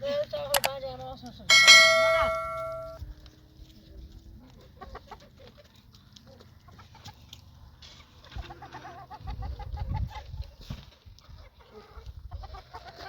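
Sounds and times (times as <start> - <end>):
chickens clucking: 4.3 - 13.0.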